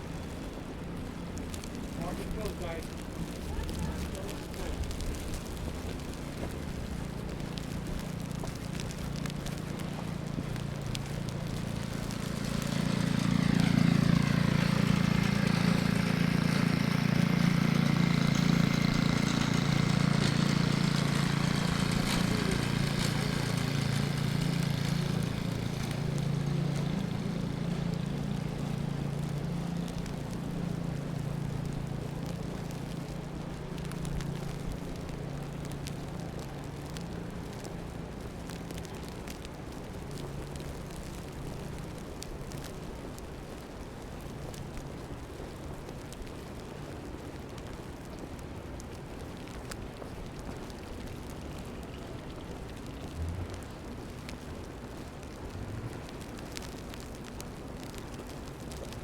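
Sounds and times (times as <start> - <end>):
large vehicle engine humming: 0.0 - 45.4, 46.0 - 59.0
street traffic: 0.0 - 59.0.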